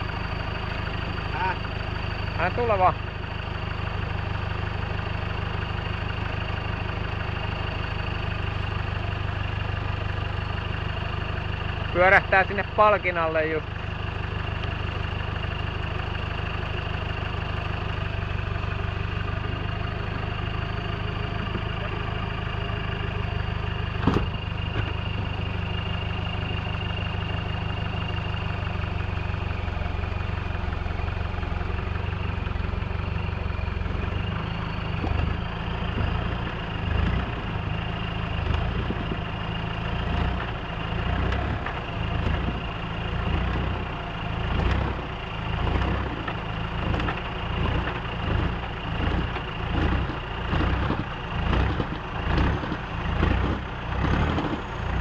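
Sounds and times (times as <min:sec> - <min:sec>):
off-road vehicle engine idling: 0:00.0 - 0:55.0
engine surging over rocks: 0:28.5 - 0:55.0.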